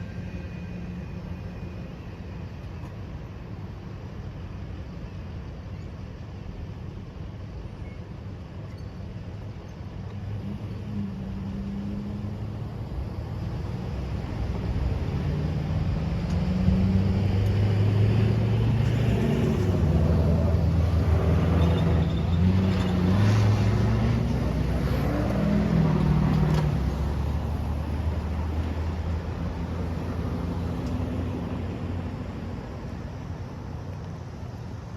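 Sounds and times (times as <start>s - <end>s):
heavy engine rumbling: 9.9s - 33.8s.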